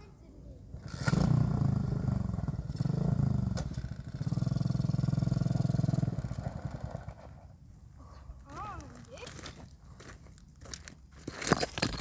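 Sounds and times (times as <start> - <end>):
motorbike engine revving: 0.7 - 7.5.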